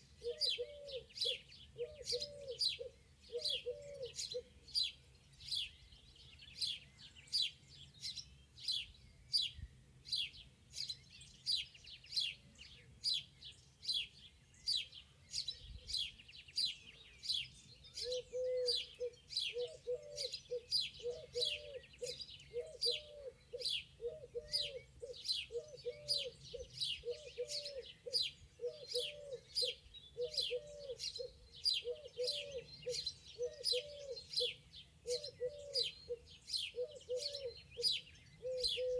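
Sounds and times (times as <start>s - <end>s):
bird chirping: 0.0s - 38.9s
bird cooing: 0.2s - 4.9s, 18.0s - 38.9s.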